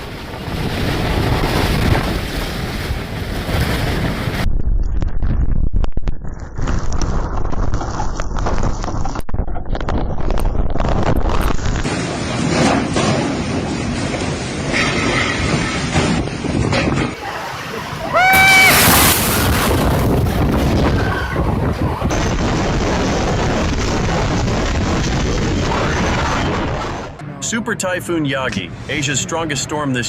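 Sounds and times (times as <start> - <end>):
surf: 0.0 - 4.5, 10.8 - 30.0
wind gusting on microphone: 0.0 - 27.2.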